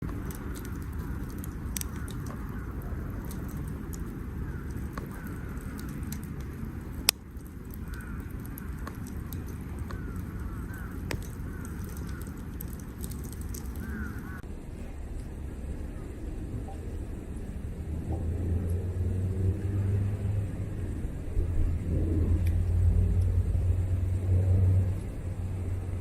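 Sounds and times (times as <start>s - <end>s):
campfire crackling and popping: 0.0s - 14.5s
steady low rumble: 0.0s - 26.0s
faint bird calls: 7.8s - 9.1s, 9.8s - 14.4s.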